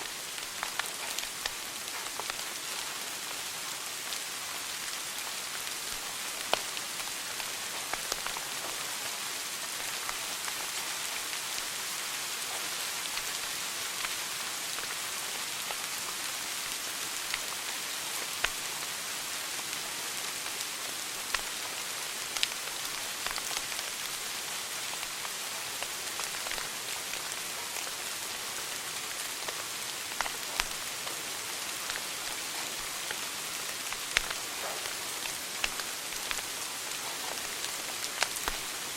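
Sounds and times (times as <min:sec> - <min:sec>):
wood fire crackling: 0:00.1 - 0:02.9, 0:17.2 - 0:17.7, 0:18.3 - 0:18.8, 0:21.2 - 0:28.0, 0:29.0 - 0:38.9.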